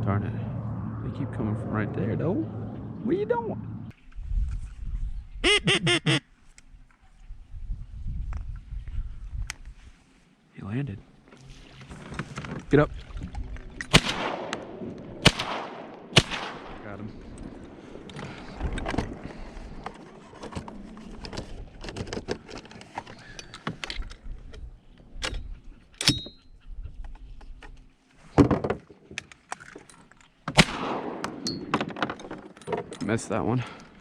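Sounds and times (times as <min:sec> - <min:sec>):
loud shotgun shots: 0:13.9 - 0:16.9, 0:30.6 - 0:31.4.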